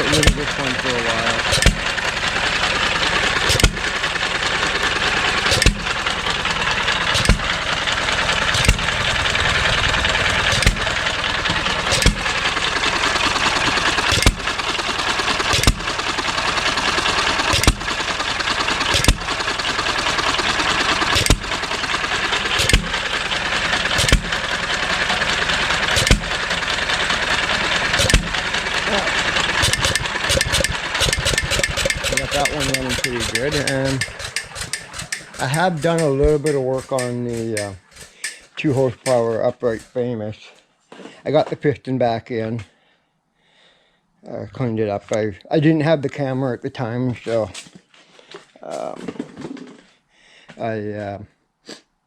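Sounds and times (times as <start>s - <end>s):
stationary engine firing bangs: 0.0s - 4.2s, 5.3s - 6.2s, 7.0s - 14.7s, 15.3s - 16.4s, 17.3s - 24.6s, 25.7s - 26.6s, 27.3s - 28.7s, 29.4s - 39.8s
engine mechanical running noise: 0.0s - 40.2s.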